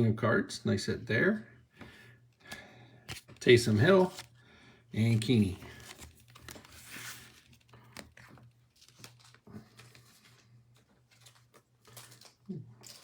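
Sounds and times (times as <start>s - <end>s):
cards clicking and rustling: 2.4s - 4.4s, 5.0s - 13.0s
foil wrapper crinkling and tearing: 2.5s - 4.4s, 5.0s - 13.0s.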